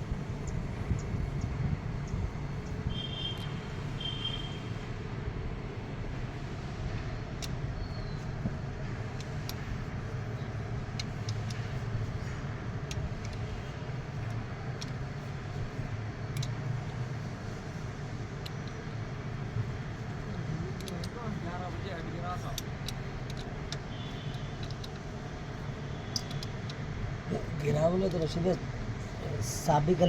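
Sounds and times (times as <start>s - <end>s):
light clicks and taps: 7.3s - 26.9s.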